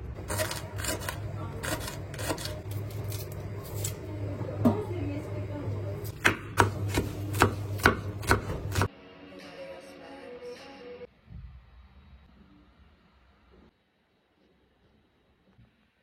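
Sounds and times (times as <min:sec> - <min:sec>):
knife chopping on cutting board: 0:06.1 - 0:08.9.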